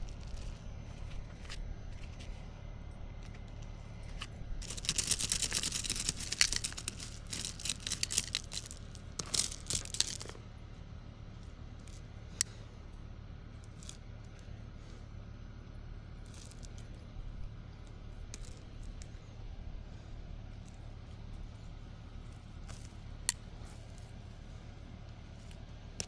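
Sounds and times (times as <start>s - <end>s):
weeds rustling and tearing: 4.6s - 10.4s.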